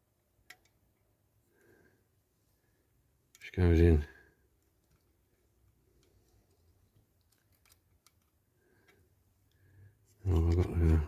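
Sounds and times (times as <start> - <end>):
light clicks of model-car parts: 0.3 - 1.1, 3.2 - 3.6, 4.4 - 11.0.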